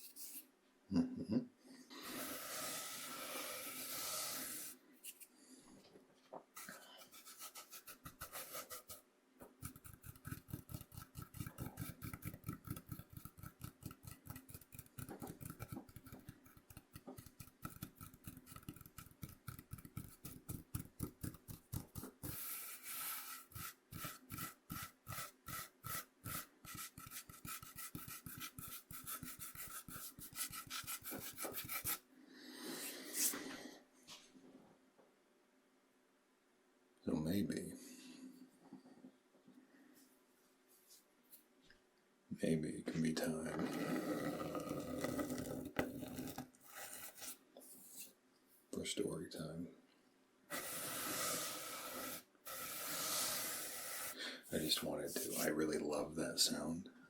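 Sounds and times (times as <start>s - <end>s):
cornmeal scraped on cutting board: 2.0s - 5.2s, 6.6s - 9.0s, 9.6s - 32.0s, 43.4s - 48.1s, 50.5s - 55.8s.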